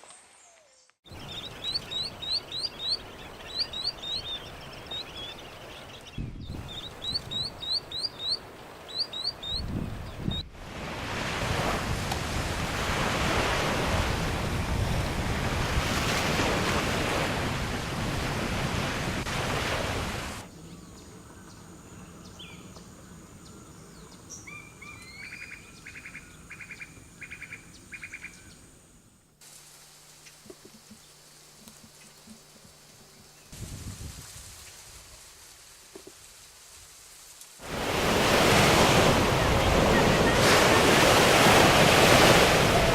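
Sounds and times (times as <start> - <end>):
bird calling: 0.4 - 5.8, 6.7 - 10.4, 20.5 - 28.7, 37.8 - 42.9.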